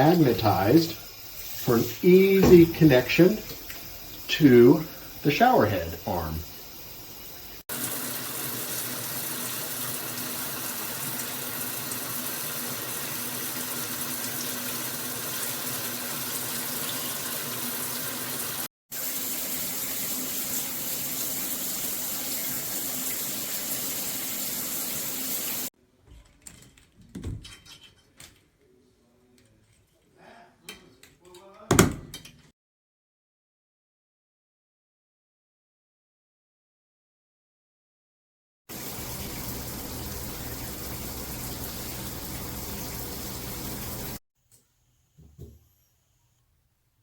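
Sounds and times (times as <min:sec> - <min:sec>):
shower head spraying water: 0:00.0 - 0:25.7, 0:38.7 - 0:44.2.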